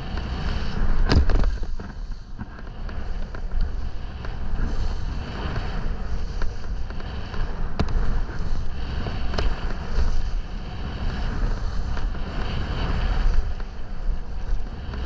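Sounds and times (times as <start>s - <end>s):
skis scraping through snow: 0.0s - 15.0s
wind rumbling on microphone: 0.0s - 15.0s.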